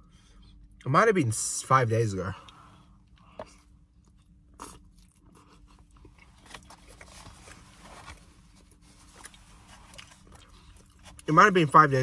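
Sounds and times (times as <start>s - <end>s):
food crunching: 3.3s - 7.6s.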